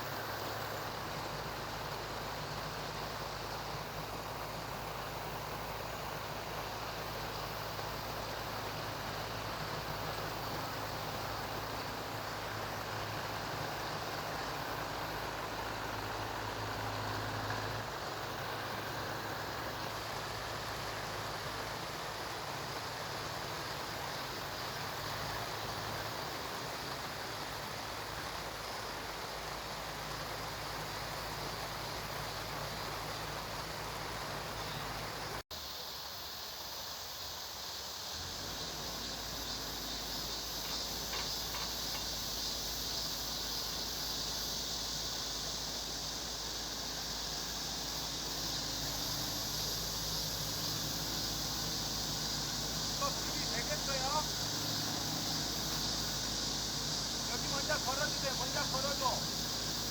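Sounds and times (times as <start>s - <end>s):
stream rushing: 0.0s - 59.9s
heavy machinery humming: 38.2s - 59.9s.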